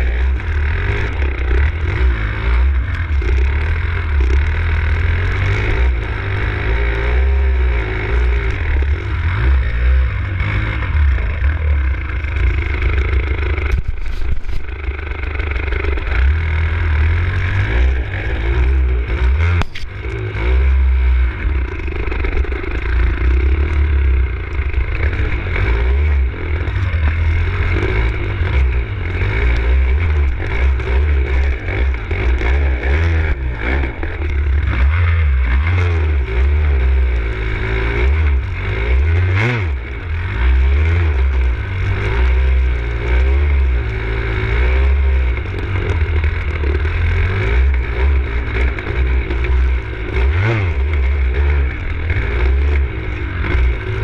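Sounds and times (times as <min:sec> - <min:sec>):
dirt bike engine revving: 0:00.0 - 0:54.0
bike rattling and knocking: 0:10.4 - 0:16.4, 0:17.5 - 0:20.3.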